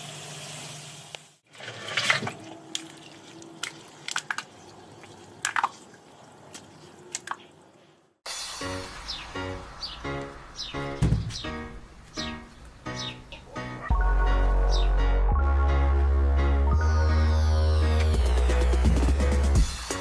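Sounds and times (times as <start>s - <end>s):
liquid dripping and spattering: 1.6s - 7.6s
steady hiss: 8.3s - 10.6s.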